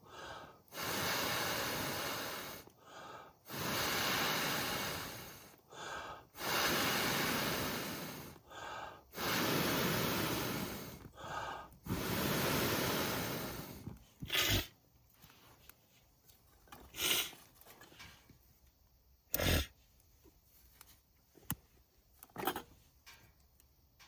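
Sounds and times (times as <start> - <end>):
person blowing long breaths: 0.0 - 14.7
quick in-breath: 0.0 - 15.6
sharp breath puff: 0.1 - 14.7, 16.9 - 17.4.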